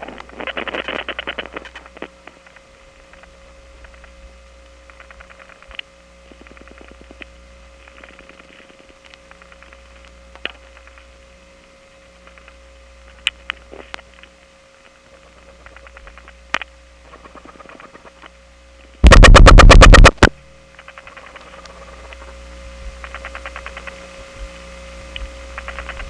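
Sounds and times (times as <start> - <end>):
dial tone hum and whine: 0.0 - 26.0
rapid burst of dial pulses: 19.0 - 22.3.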